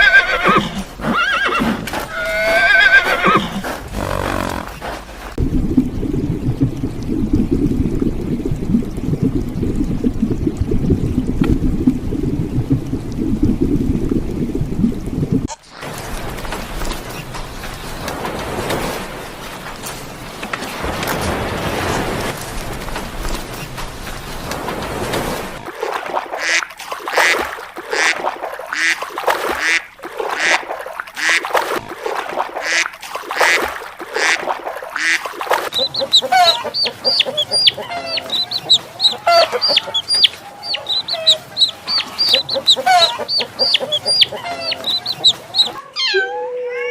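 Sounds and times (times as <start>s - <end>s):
muffled bubbling water: 0.0s - 26.5s, 33.8s - 45.8s
animal calling: 35.0s - 46.9s.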